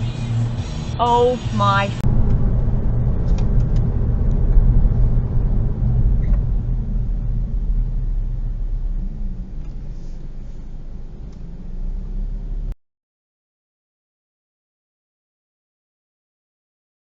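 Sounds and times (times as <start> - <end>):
car driving rumble: 0.0 - 12.8.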